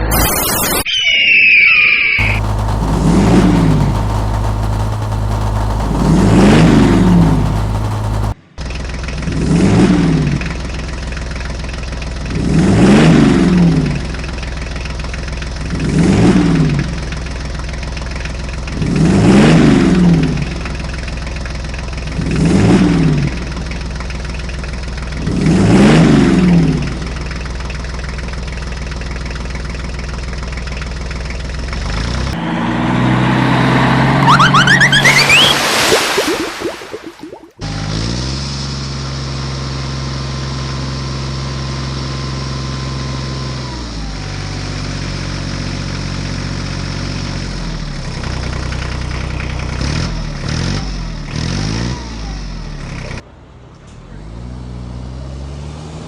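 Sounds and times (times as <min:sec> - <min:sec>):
vehicle engine running and revving: 0:02.2 - 0:28.9, 0:30.3 - 0:35.5, 0:37.6 - 0:53.2, 0:53.9 - 0:56.0.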